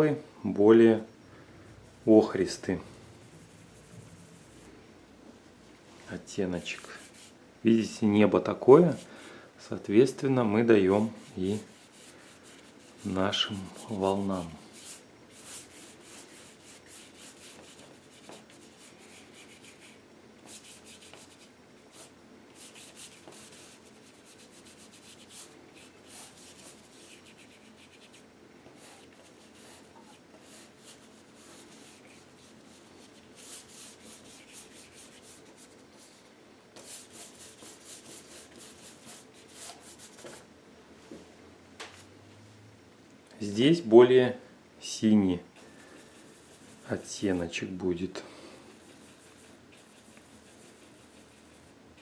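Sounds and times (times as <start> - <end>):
paintbrush scratchy strokes: 2.9 - 4.8, 6.6 - 7.4, 10.9 - 28.2, 28.8 - 40.4, 46.0 - 47.3, 48.7 - 51.8.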